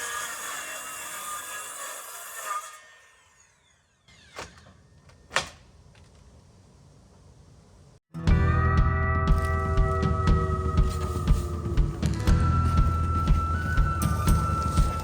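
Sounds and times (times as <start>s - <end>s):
power saw cutting wood: 0.0s - 4.9s.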